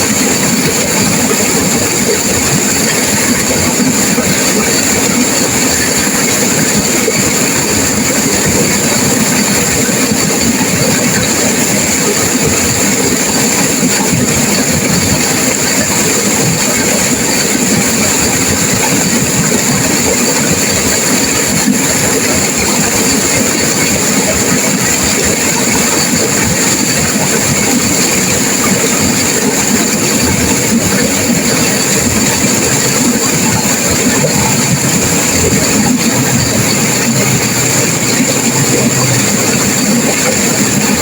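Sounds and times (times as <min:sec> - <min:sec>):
river water rushing over rapids: 0:00.0 - 0:41.0.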